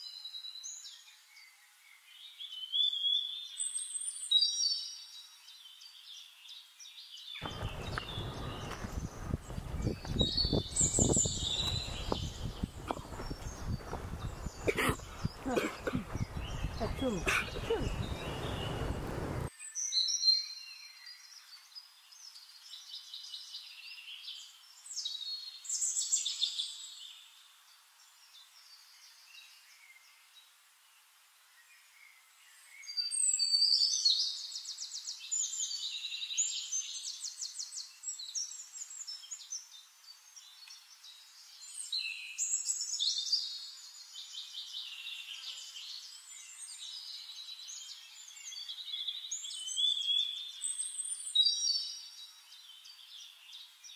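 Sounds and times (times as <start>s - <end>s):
songbirds chirping and trilling: 0.0s - 53.9s.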